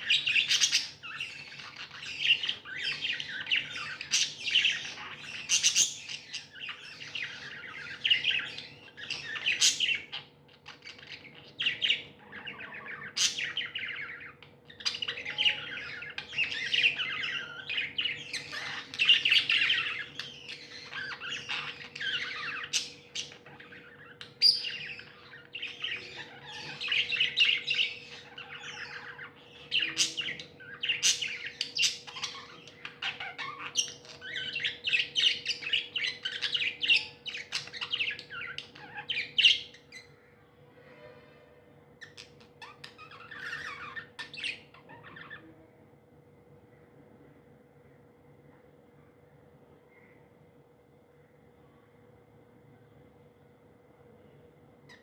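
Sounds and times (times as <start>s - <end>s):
budgerigars chirping and warbling: 0.0s - 40.4s, 42.0s - 45.6s
faint steady hum: 0.0s - 55.0s.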